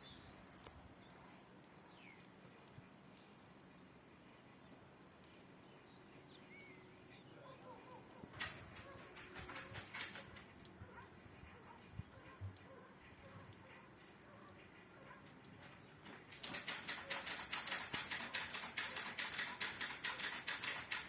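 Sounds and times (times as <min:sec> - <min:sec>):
faint bird chirp: 0:04.4 - 0:08.2
sharp taps and clicks: 0:07.9 - 0:21.0.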